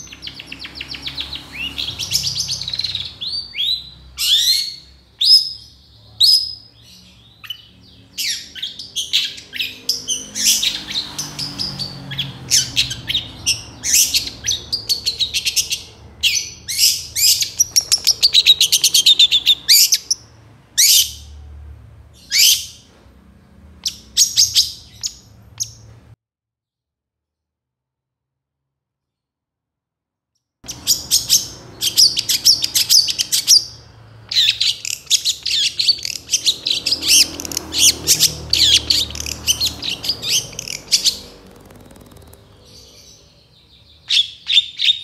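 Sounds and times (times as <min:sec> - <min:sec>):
shrike singing: 0:12.6 - 0:20.1, 0:30.7 - 0:44.8.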